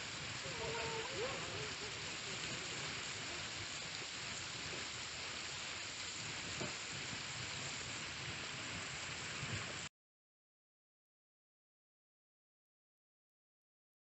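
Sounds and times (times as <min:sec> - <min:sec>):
river water rushing: 0:00.0 - 0:06.0.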